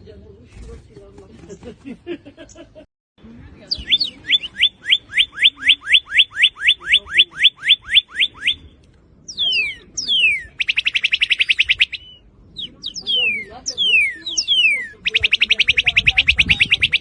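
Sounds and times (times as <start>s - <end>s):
bird singing whistles and trill: 3.7s - 17.0s.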